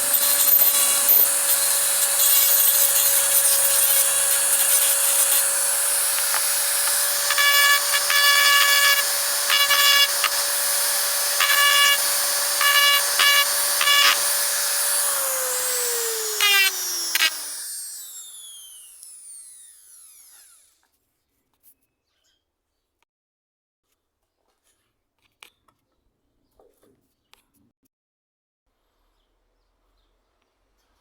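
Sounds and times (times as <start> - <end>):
high ringing screeches: 0.0 - 5.5
power tool motor running: 0.0 - 20.8.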